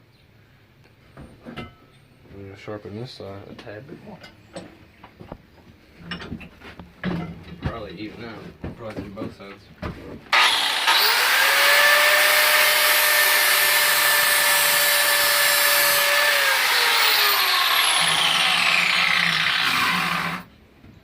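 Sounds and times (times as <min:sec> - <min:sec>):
grinder motor whine: 0:10.3 - 0:20.5
grinder grinding metal blade: 0:10.4 - 0:20.5.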